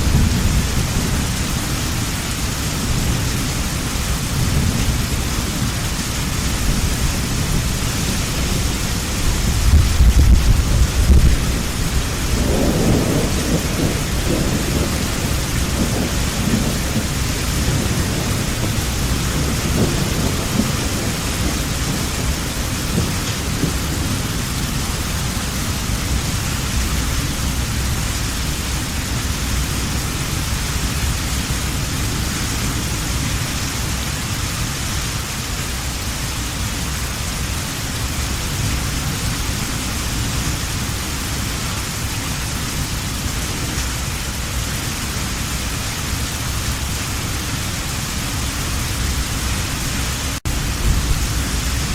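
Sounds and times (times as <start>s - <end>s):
thunder rolling: 0.0s - 31.2s, 49.6s - 51.9s
heavy rain falling: 0.0s - 51.9s.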